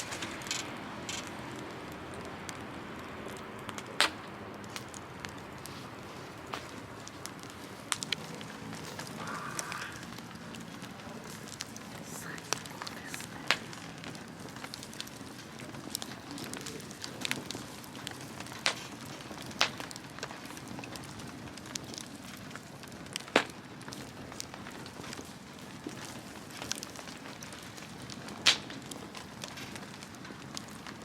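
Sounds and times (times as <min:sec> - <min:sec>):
bonfire crackling and popping: 0:00.0 - 0:31.0.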